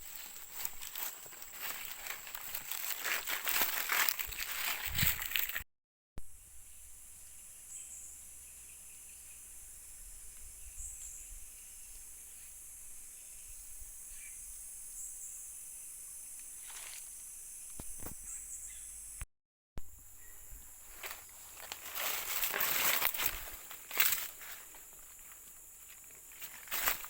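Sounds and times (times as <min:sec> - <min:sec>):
high insect drone: 0:00.0 - 0:05.6, 0:06.2 - 0:19.2, 0:19.8 - 0:27.0.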